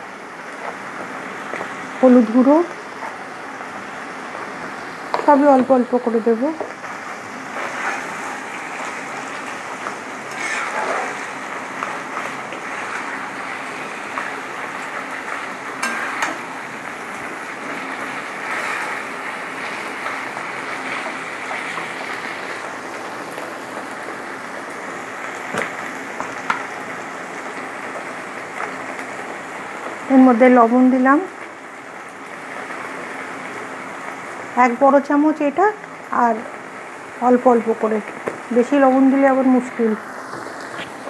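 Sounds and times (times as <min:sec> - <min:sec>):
food sizzling in hot oil: 0:00.0 - 0:41.0
spatula stirring: 0:06.8 - 0:16.4
spatula tapping a pan: 0:15.8 - 0:16.4.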